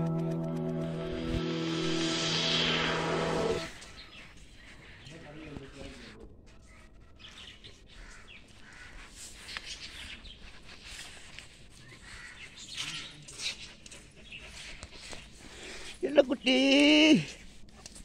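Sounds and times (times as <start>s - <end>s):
birds chirping faintly: 3.8s - 16.6s.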